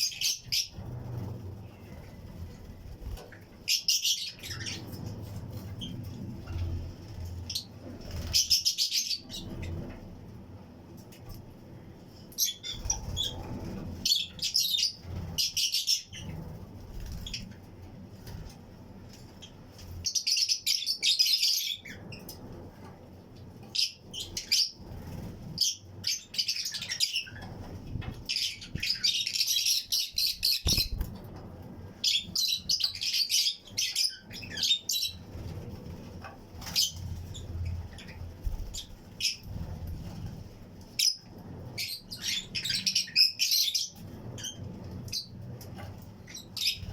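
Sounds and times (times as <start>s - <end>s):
lovebirds chirping: 0.0s - 9.8s, 23.7s - 31.2s.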